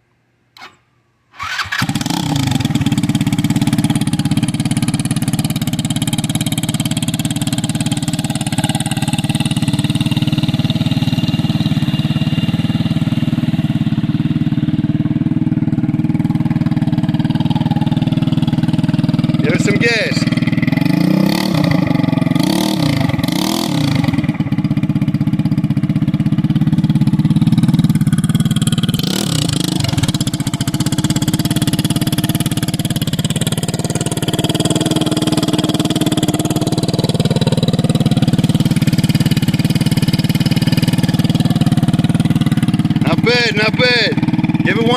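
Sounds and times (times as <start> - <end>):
scooter engine idling and revving: 1.4 - 44.9.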